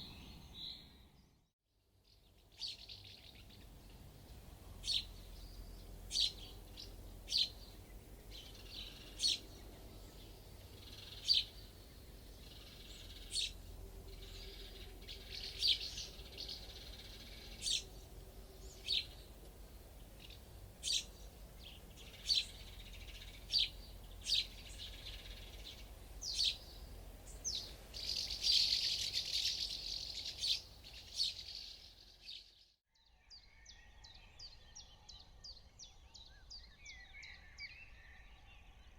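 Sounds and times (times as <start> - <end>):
birds chirping: 2.3 - 32.7.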